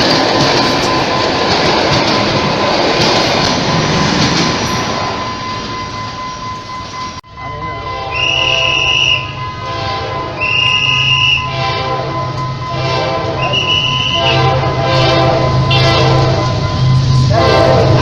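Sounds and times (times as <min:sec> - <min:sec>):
train running: 0:00.0 - 0:18.0
locomotive horn blasts: 0:07.8 - 0:18.0.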